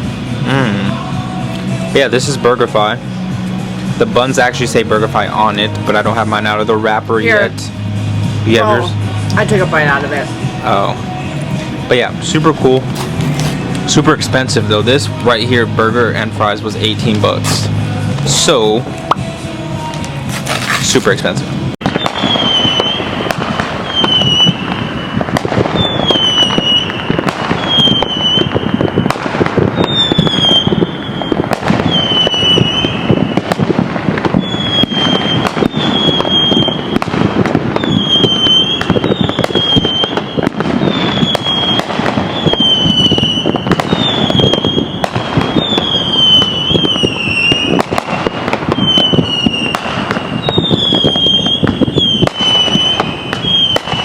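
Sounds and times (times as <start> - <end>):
fireworks bangs and crackling: 0.0 - 54.0
high falling whistle: 0.4 - 1.1, 21.9 - 33.6, 34.4 - 37.1, 37.8 - 54.0.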